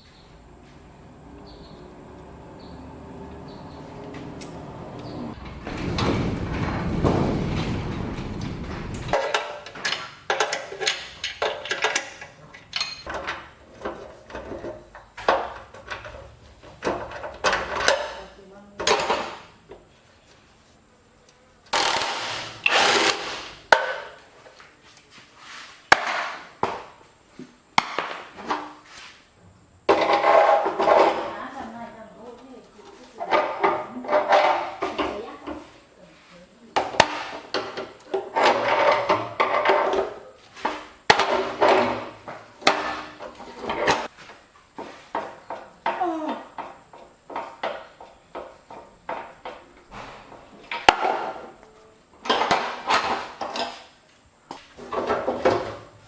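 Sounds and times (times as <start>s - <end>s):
sharp knocks: 5.4s - 9.2s.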